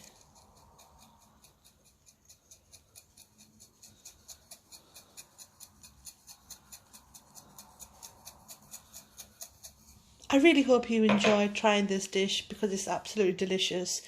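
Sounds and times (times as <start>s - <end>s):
faint rapid ticking: 0.0s - 10.2s.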